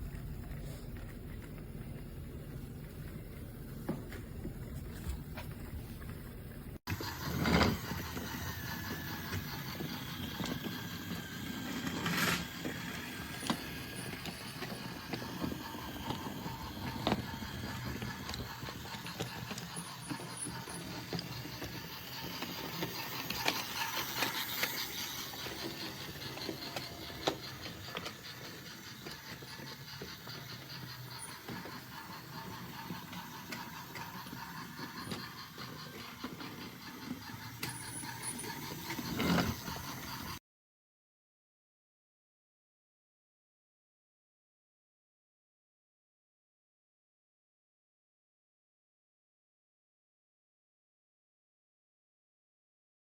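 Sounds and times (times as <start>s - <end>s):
toy train motor whirring: 6.8s - 40.4s.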